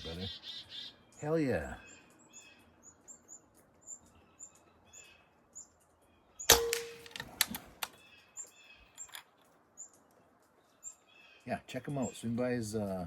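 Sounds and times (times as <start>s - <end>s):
small birds chirping: 0.0s - 13.0s
sharp metallic knock: 6.5s - 7.2s.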